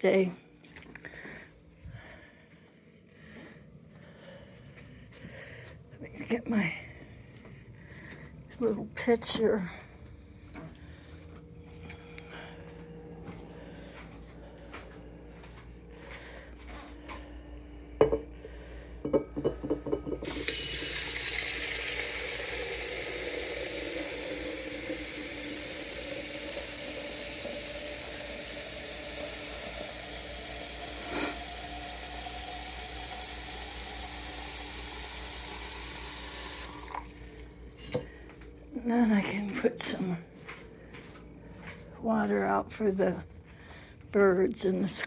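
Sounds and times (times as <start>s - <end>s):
tap water running into container: 19.6s - 37.7s.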